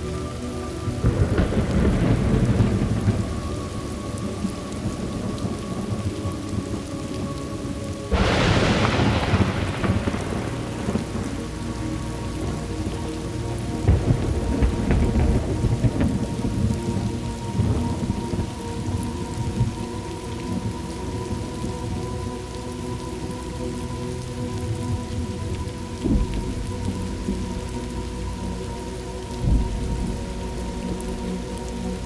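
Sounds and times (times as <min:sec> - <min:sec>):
steady rain: 0:00.0 - 0:32.0
thunder rumbling: 0:00.0 - 0:32.0
sharp thunderclap: 0:08.1 - 0:13.0, 0:13.9 - 0:16.7.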